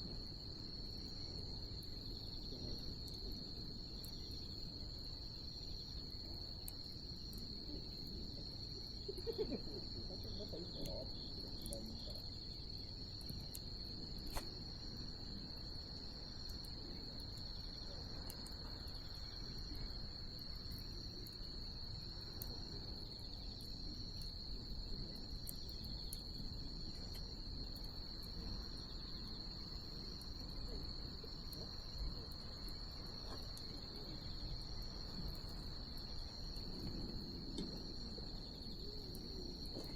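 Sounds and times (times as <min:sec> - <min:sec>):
night insects trilling: 0:00.0 - 0:39.9
bonfire crackling and popping: 0:11.5 - 0:39.9.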